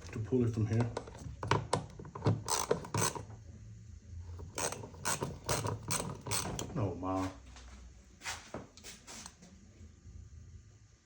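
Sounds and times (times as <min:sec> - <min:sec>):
ratchet wrench clicking: 0:02.2 - 0:03.3, 0:04.4 - 0:06.7.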